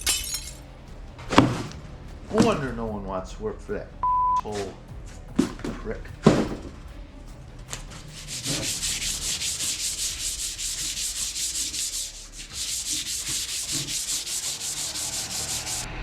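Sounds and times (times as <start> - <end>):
hand sanding with sandpaper: 7.7 - 15.9.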